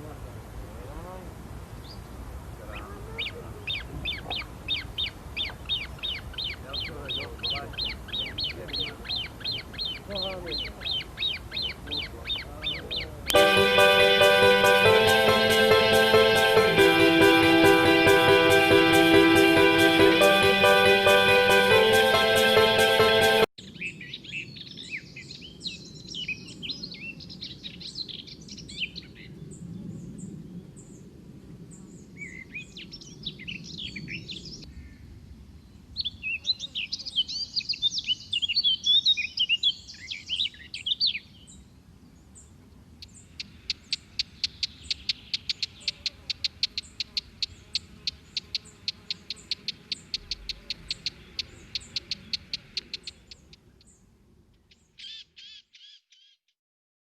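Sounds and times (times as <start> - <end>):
small birds twittering: 1.8 - 13.4, 35.9 - 56.4
sharp bird chip notes: 13.4 - 23.5.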